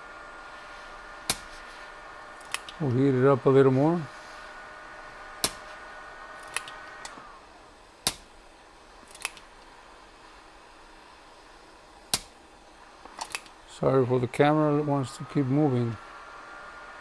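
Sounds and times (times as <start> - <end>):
heat gun whining: 0.0 - 17.0.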